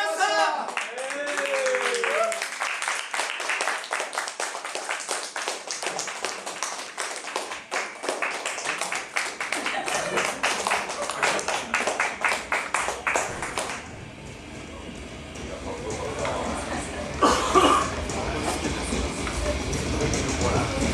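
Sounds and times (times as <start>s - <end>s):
audience clapping: 0.0s - 20.9s
voices: 9.5s - 20.9s.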